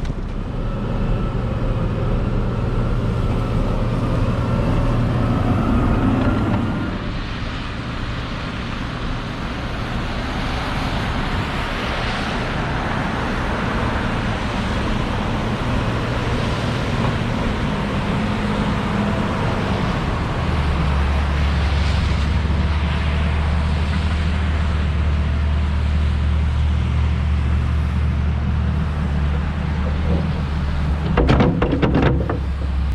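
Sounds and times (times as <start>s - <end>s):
diesel engine running: 0.0s - 32.9s
brief clatter: 31.0s - 32.9s.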